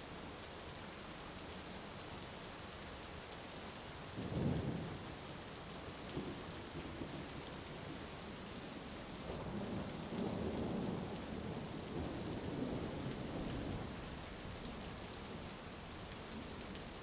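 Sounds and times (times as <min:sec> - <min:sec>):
heavy rain: 0:00.0 - 0:17.0
low rumble of thunder: 0:04.2 - 0:05.0, 0:09.2 - 0:14.6.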